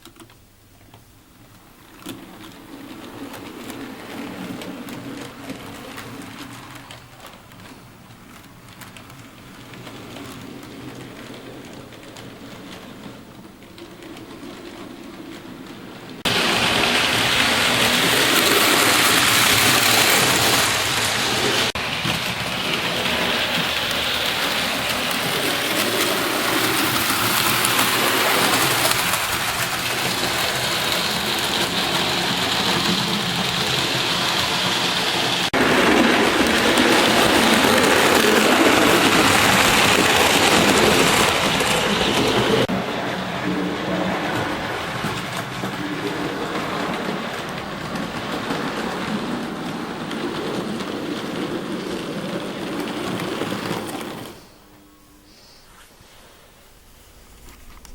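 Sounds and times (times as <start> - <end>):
model train wheels rattling on track: 0.0 - 54.7.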